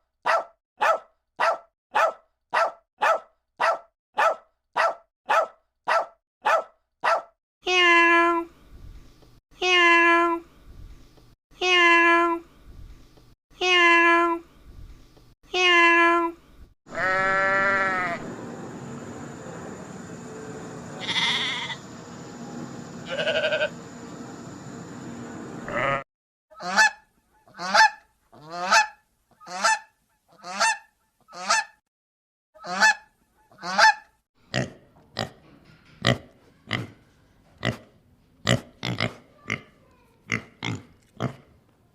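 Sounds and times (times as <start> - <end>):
steady background hiss: 18.2 - 25.7
drawn-out animal calls: 21.0 - 21.8.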